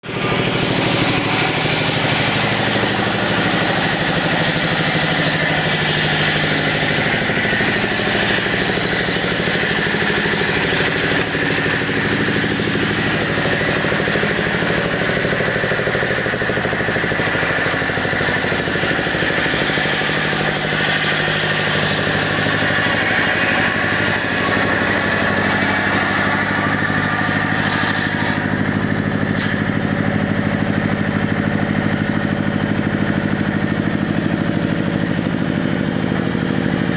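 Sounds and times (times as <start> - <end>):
chainsaw cutting wood: 0.0 - 36.8.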